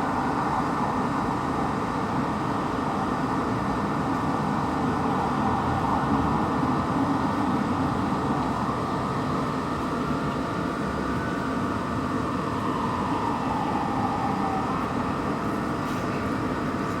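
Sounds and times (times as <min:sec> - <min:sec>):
fire engine siren wailing: 0:04.3 - 0:10.0, 0:10.6 - 0:16.6.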